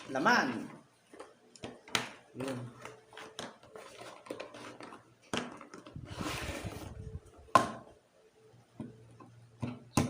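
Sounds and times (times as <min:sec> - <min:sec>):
cardboard scraping and sliding: 0:06.0 - 0:07.1.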